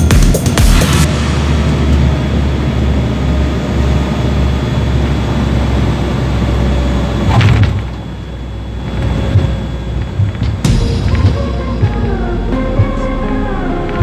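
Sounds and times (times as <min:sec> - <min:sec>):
whooshing sweep: 0:00.0 - 0:04.1
aircraft engine rumble: 0:00.0 - 0:14.0.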